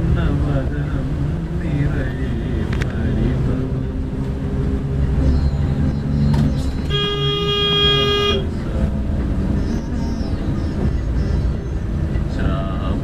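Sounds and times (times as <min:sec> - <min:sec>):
low engine and road rumble: 0:00.0 - 0:13.0
vehicle horn blast: 0:06.9 - 0:08.5.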